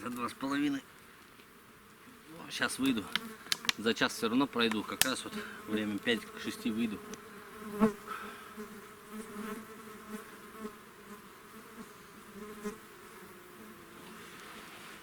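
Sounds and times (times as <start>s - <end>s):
flying insects buzzing: 0.0s - 15.0s
sharp snap: 2.9s - 3.8s, 4.6s - 5.2s.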